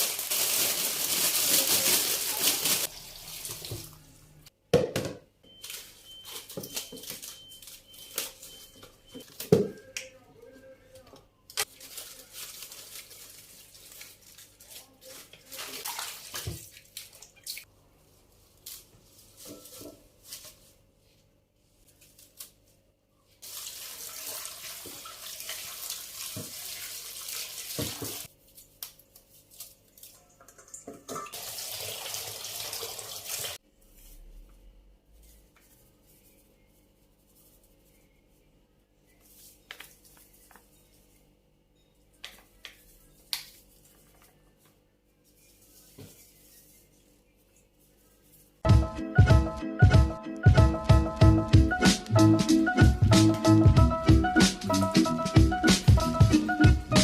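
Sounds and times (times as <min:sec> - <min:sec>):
tap water running into sink: 0:02.9 - 0:04.0, 0:23.4 - 0:28.3, 0:30.4 - 0:33.6.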